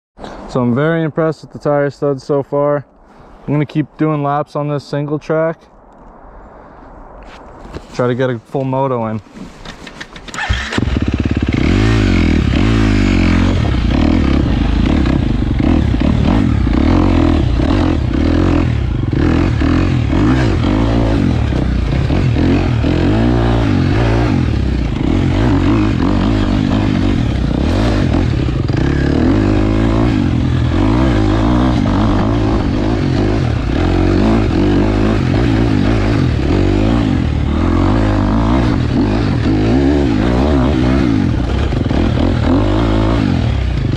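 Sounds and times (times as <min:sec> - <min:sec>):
dirt bike engine revving: 0:10.3 - 0:43.9
bike rattling and knocking: 0:37.9 - 0:43.2.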